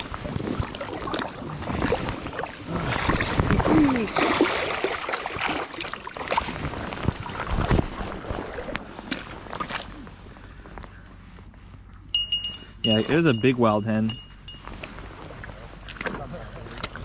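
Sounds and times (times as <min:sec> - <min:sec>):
river water splashing: 0:00.0 - 0:10.5, 0:12.5 - 0:17.0.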